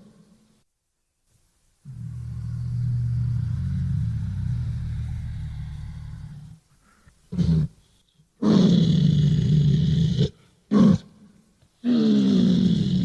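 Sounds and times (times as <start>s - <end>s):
low-pitched creature calls: 1.9s - 6.6s.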